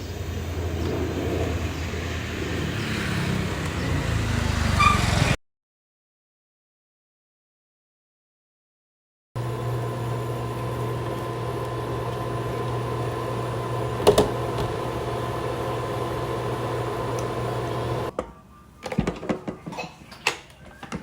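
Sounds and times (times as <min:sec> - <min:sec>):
small motor humming: 0:09.4 - 0:18.1
click: 0:17.1 - 0:17.3.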